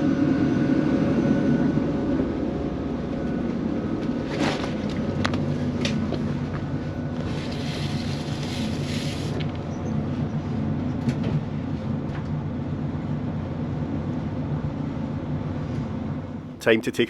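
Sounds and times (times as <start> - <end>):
rumbling rail noise: 0.0 - 16.6
diesel engine drone: 0.0 - 17.0.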